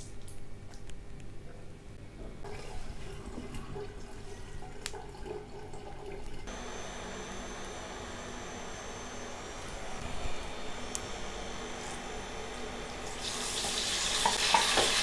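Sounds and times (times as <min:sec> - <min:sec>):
steady hum and hiss: 0:06.3 - 0:15.0
tap water running into sink: 0:13.3 - 0:15.0.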